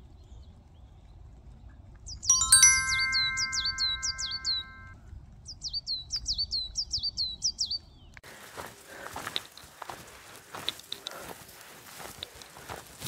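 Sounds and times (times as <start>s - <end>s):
chime of held tones: 2.3s - 4.9s.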